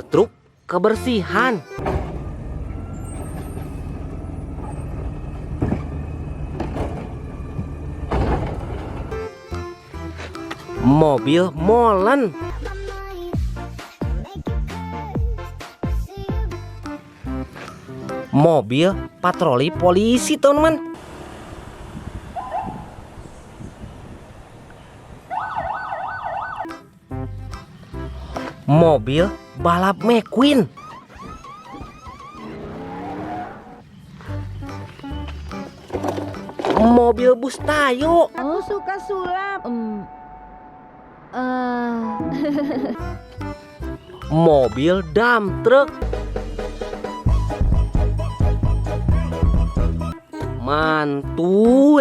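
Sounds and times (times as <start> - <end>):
garbage truck engine running: 1.8 - 10.9, 20.8 - 25.3, 33.8 - 38.2
police siren yelping: 22.4 - 23.0, 25.3 - 26.8, 30.4 - 33.9.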